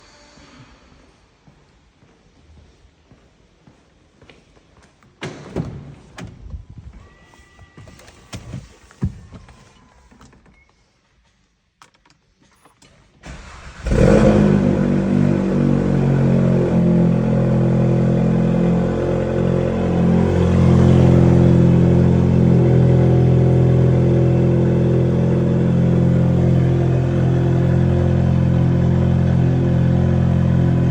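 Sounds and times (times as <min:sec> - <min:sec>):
car engine starting and idling: 0:13.2 - 0:30.9.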